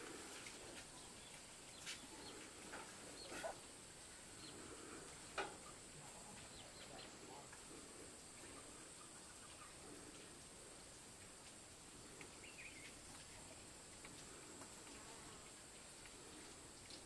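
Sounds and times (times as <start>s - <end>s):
faint bird chirps: 0.9s - 3.6s, 4.3s - 9.9s, 12.2s - 13.5s.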